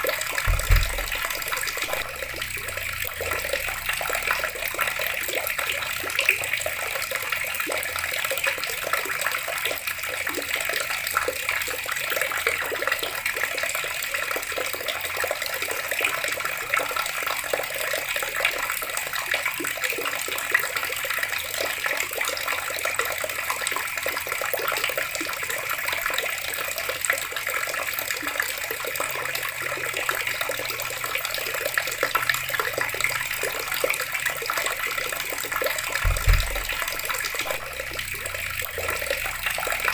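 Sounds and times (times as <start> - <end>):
water tap running: 0.0 - 28.0, 29.0 - 39.9.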